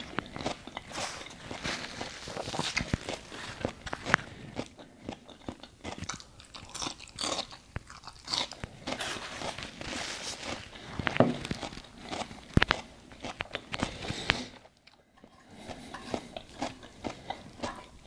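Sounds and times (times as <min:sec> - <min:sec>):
person eating crunchy food: 0:00.0 - 0:18.0.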